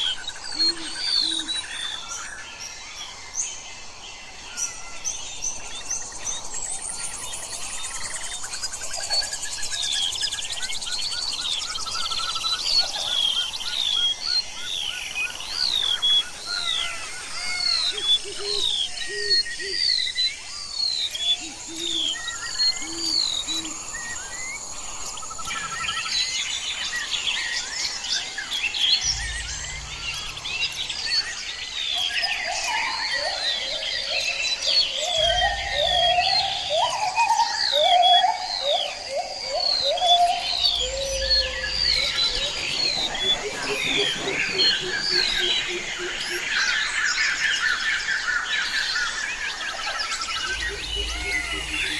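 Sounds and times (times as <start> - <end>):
birds chirping and calling: 4.7 - 51.9
high insect drone: 15.3 - 51.9
low rapid bird calls: 28.7 - 51.9.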